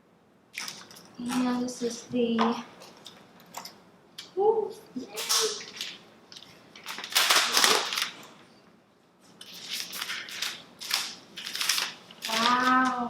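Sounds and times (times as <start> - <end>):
packaging rustling and crinkling: 0.6 - 1.7, 5.2 - 8.5, 9.3 - 13.0.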